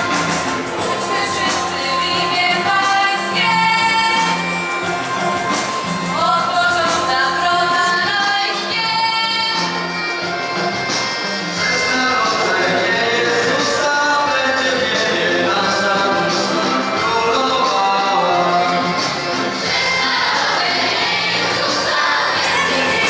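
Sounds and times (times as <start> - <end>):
musical accompaniment: 0.0 - 23.0
voices singing held notes: 0.0 - 23.0.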